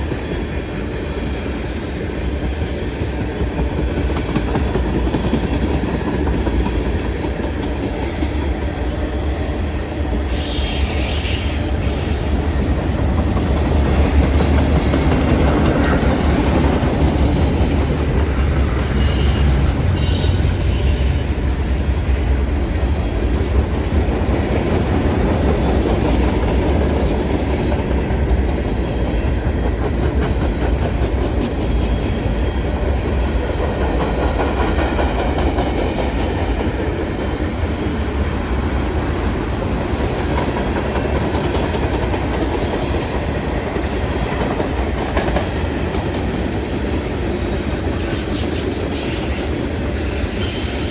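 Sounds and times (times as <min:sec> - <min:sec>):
train rumbling past: 0:00.0 - 0:50.9
train wheels squealing: 0:10.1 - 0:22.6, 0:47.9 - 0:50.9.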